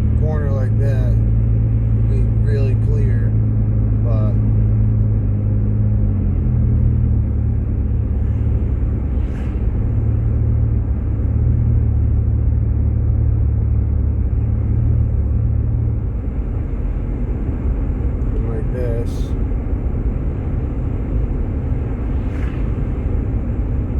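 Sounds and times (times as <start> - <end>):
car engine rumble: 0.0 - 23.9.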